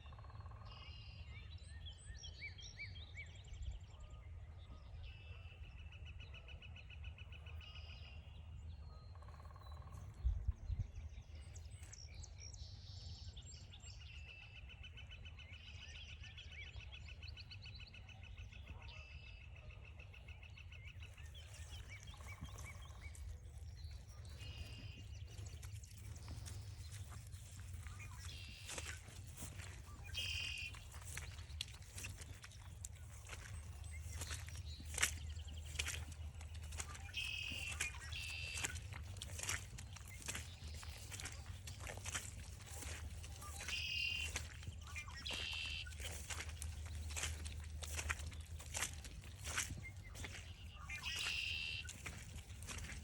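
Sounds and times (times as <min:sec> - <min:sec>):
songbirds singing: 0:00.0 - 0:53.0
fast bird trill: 0:24.5 - 0:32.3, 0:33.0 - 0:48.1, 0:48.7 - 0:52.9.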